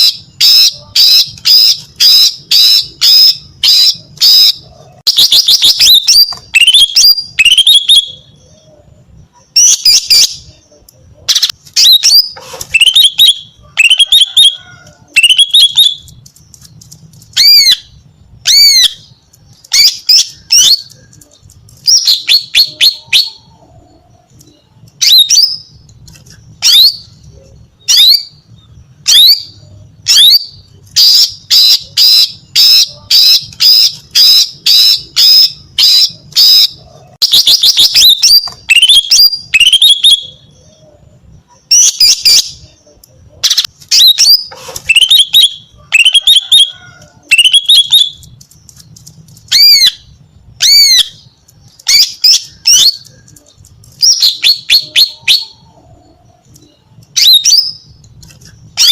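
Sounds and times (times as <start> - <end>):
bird calling high sharp notes: 0.0 - 16.2, 26.5 - 40.9, 41.5 - 48.4
bird rattle: 48.2 - 49.5.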